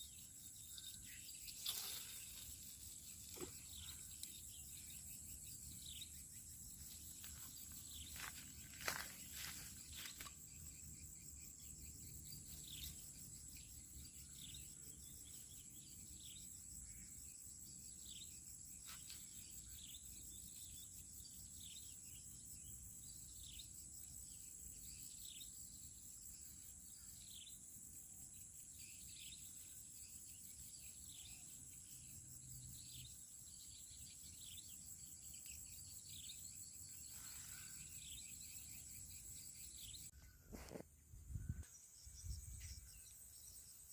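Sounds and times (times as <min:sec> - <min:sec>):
falling insect chirps: 0:00.0 - 0:17.0
insect drone: 0:00.0 - 0:43.9.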